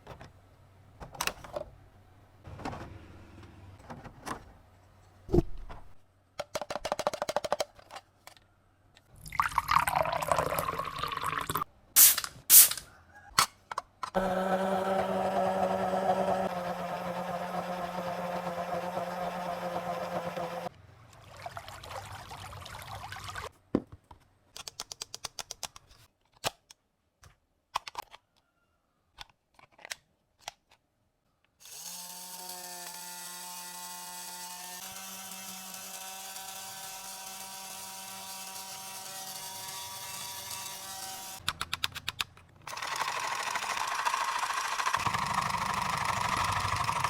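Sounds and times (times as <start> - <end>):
small electric motor humming: 14.2 - 20.7, 31.6 - 41.4, 42.7 - 47.0
plastic clicks: 24.1 - 28.2, 29.2 - 30.8.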